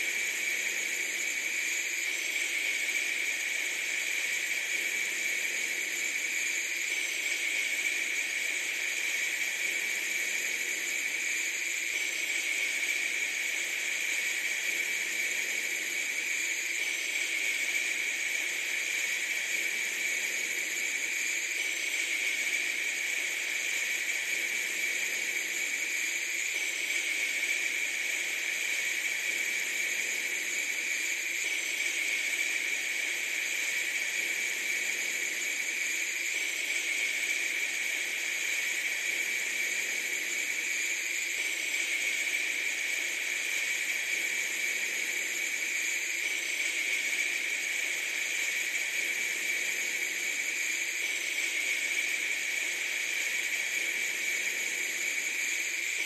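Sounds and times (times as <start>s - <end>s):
steady high hiss: 0.0s - 56.0s.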